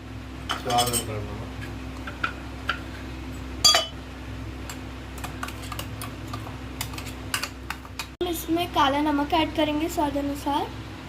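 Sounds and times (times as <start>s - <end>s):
metal spoon clinking on vessels: 0.5s - 1.2s, 3.6s - 4.0s.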